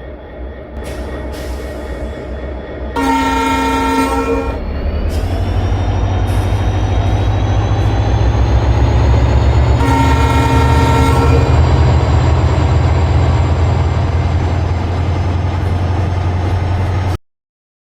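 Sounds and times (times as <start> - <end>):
train rumbling past: 0.0 - 17.2
train horn: 3.0 - 4.7, 9.6 - 12.1.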